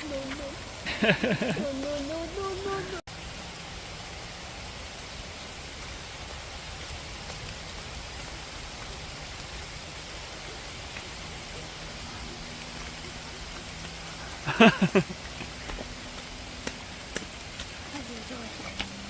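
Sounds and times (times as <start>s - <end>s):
person's voice: 0.0s - 3.0s, 17.8s - 18.9s
steady rain falling: 0.0s - 19.0s.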